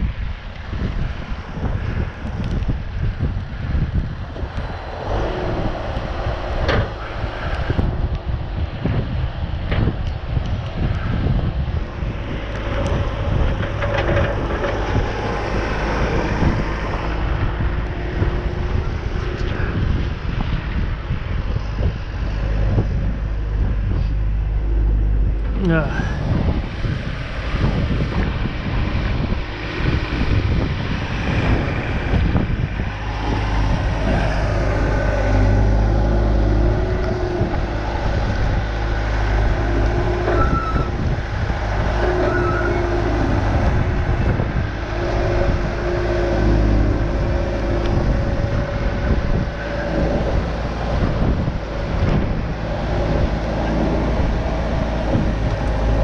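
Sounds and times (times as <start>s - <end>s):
engines low rumble: 0.0s - 56.0s
engine note rising and falling: 11.8s - 56.0s.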